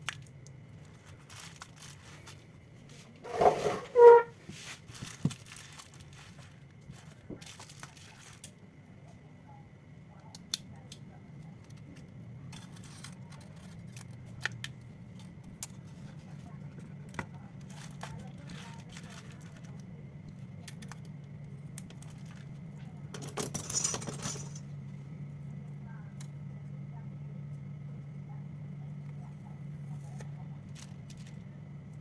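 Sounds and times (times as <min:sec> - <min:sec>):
hand tools clicking and scraping: 0:03.2 - 0:04.3
steady low hum: 0:24.3 - 0:32.0.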